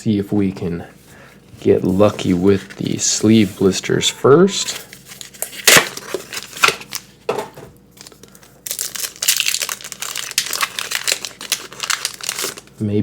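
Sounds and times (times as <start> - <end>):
plastic packaging crinkling: 4.7 - 7.2, 7.9 - 12.8.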